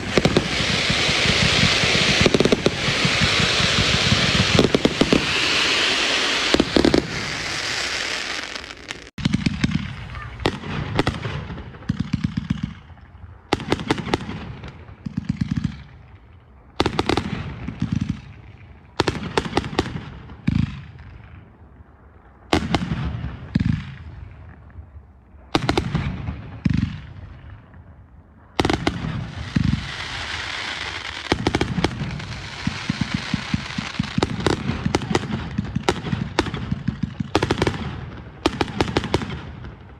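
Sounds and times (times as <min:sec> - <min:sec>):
fireworks crackling hiss: 0:00.0 - 0:11.2, 0:28.6 - 0:39.9
fireworks bangs: 0:00.0 - 0:16.1, 0:28.5 - 0:39.9.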